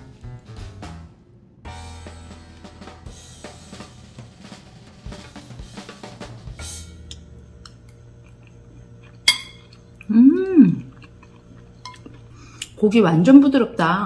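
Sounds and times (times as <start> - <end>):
boogie-woogie drum music: 1.7 - 7.0
woman saying mmm: 10.0 - 10.9.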